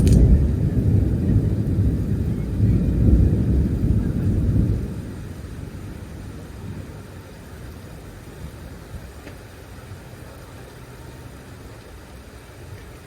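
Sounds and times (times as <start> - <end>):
thunder rumbling: 0.0 - 9.2.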